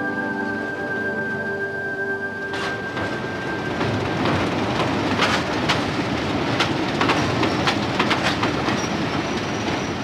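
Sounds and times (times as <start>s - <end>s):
train rumbling: 0.0s - 10.0s
wheels clicking over rail joints: 2.4s - 10.0s.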